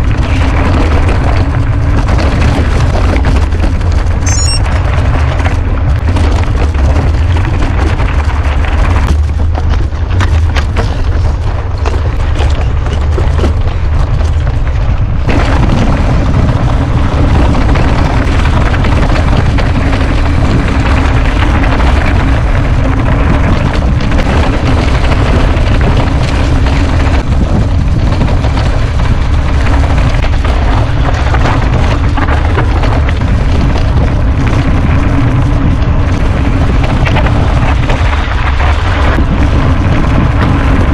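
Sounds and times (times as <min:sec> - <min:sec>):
bike rumbling and rattling on dirt: 0:00.0 - 0:40.9
wind buffeting microphone: 0:00.0 - 0:40.9.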